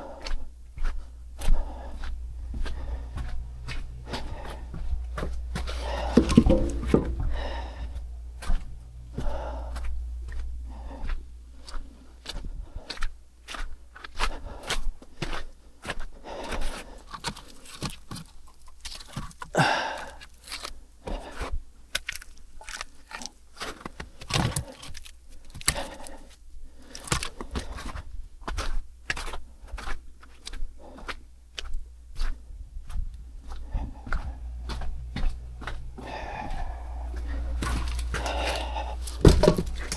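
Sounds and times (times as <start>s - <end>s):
low hum: 0.5s - 12.3s, 31.9s - 39.9s
objects being handled: 1.9s - 10.8s, 34.5s - 39.9s.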